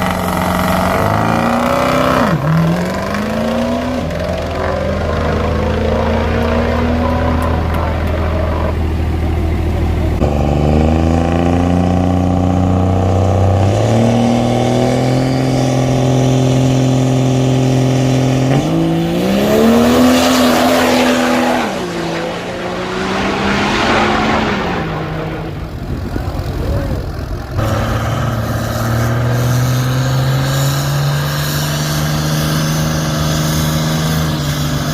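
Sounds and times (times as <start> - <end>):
diesel truck engine running hard: 0.0 - 34.9
loud rush of noise: 19.2 - 28.7.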